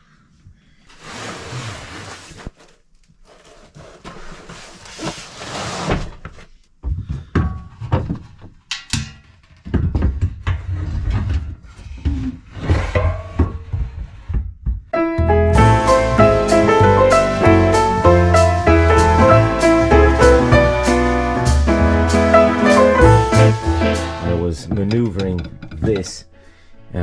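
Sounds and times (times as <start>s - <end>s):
parts clattering and knocking: 6.2s - 15.0s, 24.5s - 26.4s.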